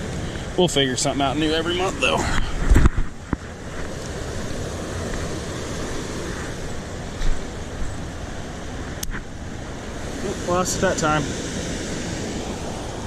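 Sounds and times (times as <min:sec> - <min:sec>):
water rushing over spillway: 0:00.0 - 0:02.9, 0:03.8 - 0:13.0
wind on microphone: 0:00.0 - 0:13.0.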